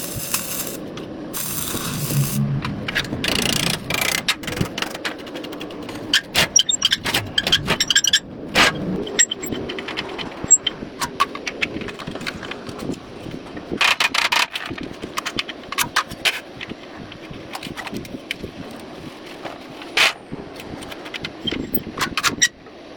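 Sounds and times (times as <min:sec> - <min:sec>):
short scraping hiss: 0:01.4 - 0:04.1.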